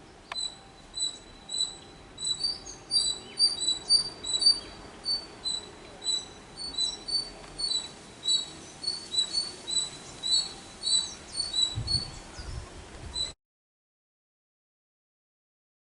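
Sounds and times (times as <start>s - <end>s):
bird calling high-pitched notes: 0.0s - 12.5s
low thumps of wind or handling: 9.1s - 13.4s.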